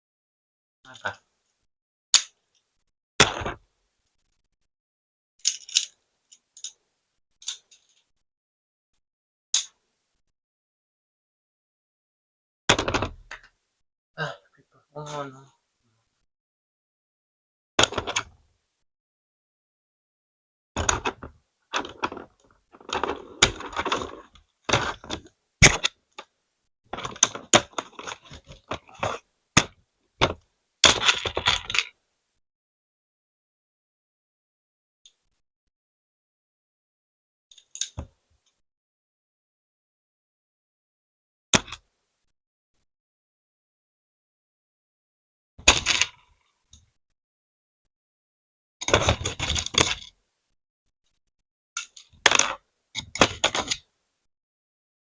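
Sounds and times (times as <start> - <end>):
plastic toy bricks clattering: 5.4 - 6.0, 20.8 - 25.9, 30.8 - 32.0, 48.9 - 50.1.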